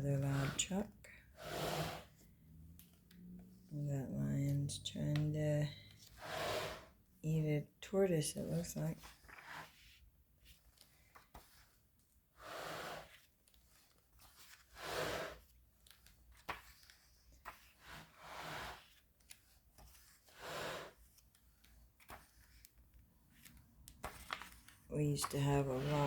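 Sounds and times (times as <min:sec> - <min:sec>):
book pages turning: 0:02.0 - 0:03.7, 0:09.0 - 0:12.2, 0:13.0 - 0:26.0.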